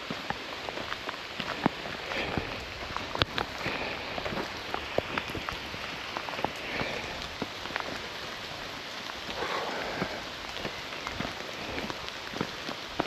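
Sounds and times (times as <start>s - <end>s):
heavy rain falling: 0.0s - 13.0s
raindrops ticking close by: 0.0s - 13.0s.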